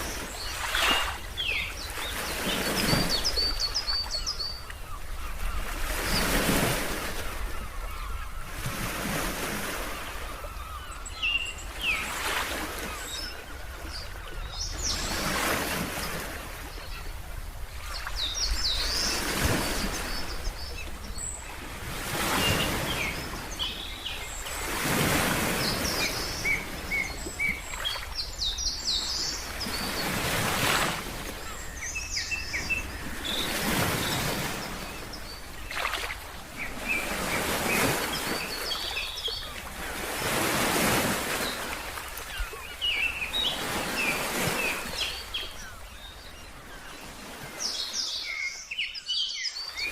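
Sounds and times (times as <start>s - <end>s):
small birds chirping: 17.8s - 49.9s.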